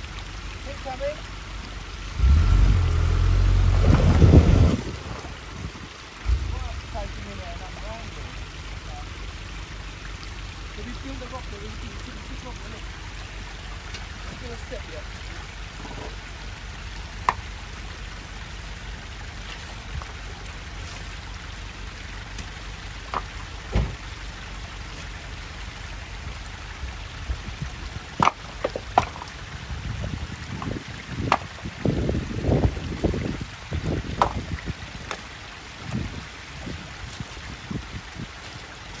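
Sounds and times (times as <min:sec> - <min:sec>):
engine idling: 0:00.0 - 0:26.8.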